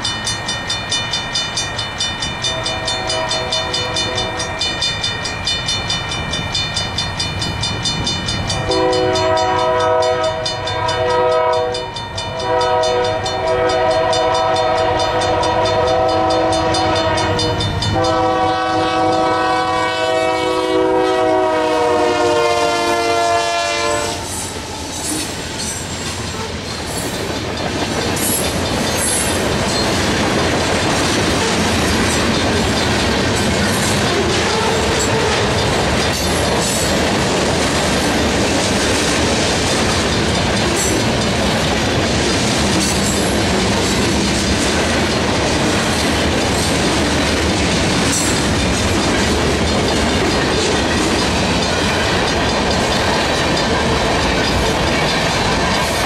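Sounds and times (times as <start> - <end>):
crossing bell ringing: 0.0 - 42.1, 47.7 - 56.0
locomotive horn blasts: 2.4 - 4.6, 8.6 - 24.4
freight cars rumbling and clattering: 24.8 - 56.0.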